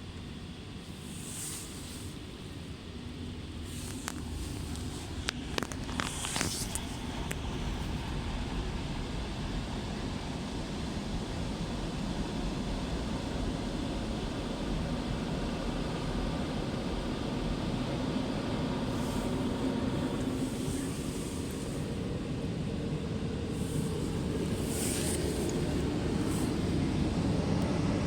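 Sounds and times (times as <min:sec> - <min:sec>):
car wash machinery rumbling: 0:00.0 - 0:11.8, 0:15.0 - 0:28.0
brief hiss: 0:00.8 - 0:02.8, 0:03.6 - 0:07.0, 0:18.9 - 0:22.1, 0:23.5 - 0:26.8.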